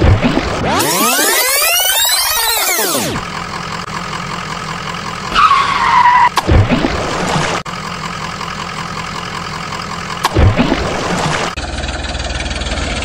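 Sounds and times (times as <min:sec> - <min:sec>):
falling tone: 0:00.0 - 0:03.3
truck engine running: 0:00.0 - 0:13.0.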